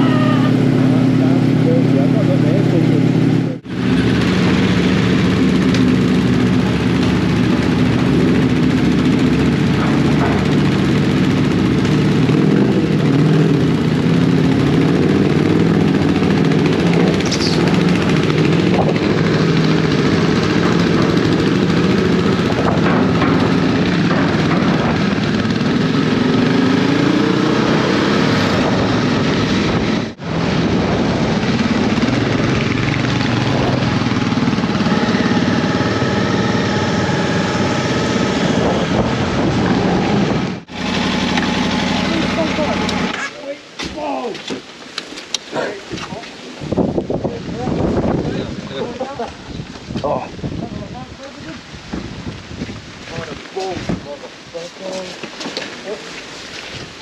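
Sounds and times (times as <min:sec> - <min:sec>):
motorcycle engine running: 0:00.0 - 0:43.3
wind noise: 0:03.6 - 0:40.8, 0:45.5 - 0:54.6, 0:56.4 - 0:57.0.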